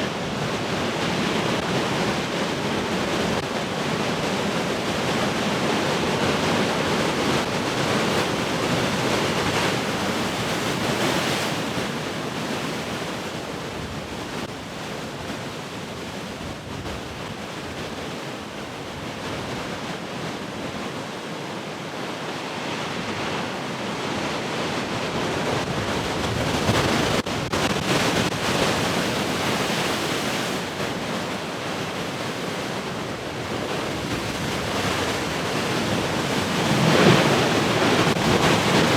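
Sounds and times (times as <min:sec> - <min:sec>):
large ocean waves breaking: 0:00.0 - 0:38.9
wind on microphone: 0:22.9 - 0:38.9.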